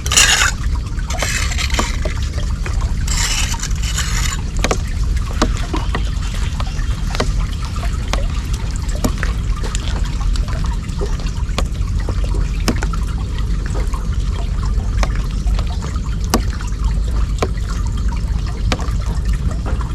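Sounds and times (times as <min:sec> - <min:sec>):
water drips: 0:00.0 - 0:19.9
water trickling into drain: 0:00.0 - 0:19.9.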